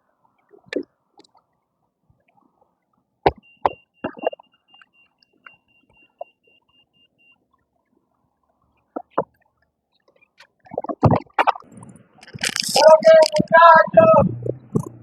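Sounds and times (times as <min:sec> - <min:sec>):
rapid electronic beeping: 0:03.4 - 0:07.4.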